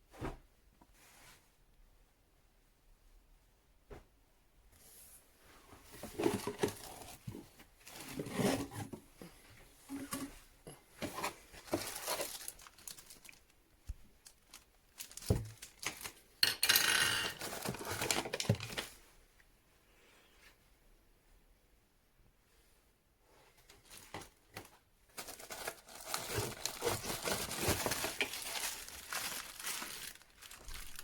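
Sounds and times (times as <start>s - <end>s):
rustling and crinkling of objects: 4.7s - 19.3s, 23.2s - 31.0s.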